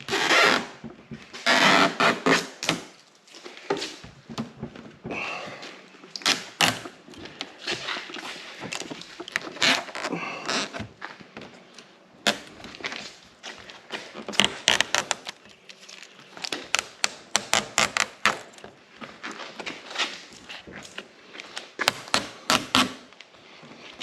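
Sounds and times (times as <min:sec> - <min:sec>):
tape tearing: 0:00.0 - 0:00.8, 0:01.4 - 0:03.2, 0:06.1 - 0:07.0, 0:14.0 - 0:18.6.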